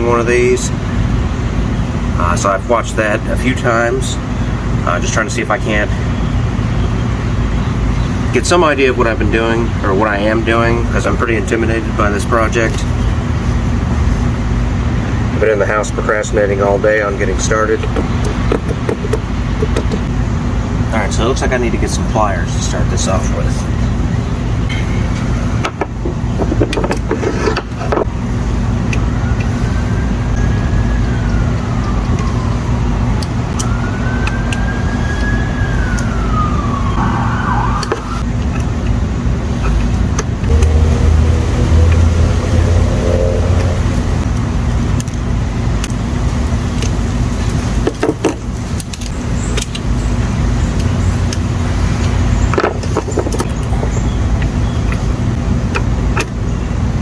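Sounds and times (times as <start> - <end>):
distant siren wailing: 28.7 - 38.4, 40.5 - 44.3.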